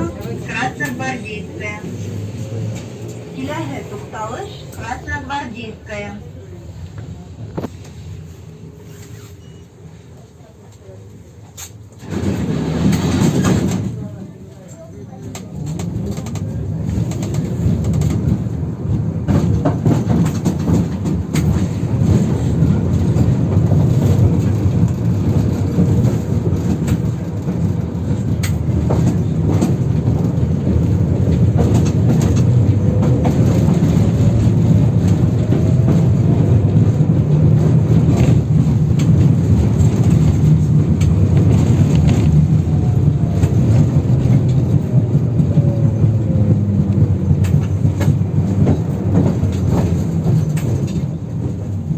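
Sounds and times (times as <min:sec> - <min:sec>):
tram rumble: 0:00.0 - 0:51.9
wheels clicking over rail joints: 0:14.6 - 0:51.9.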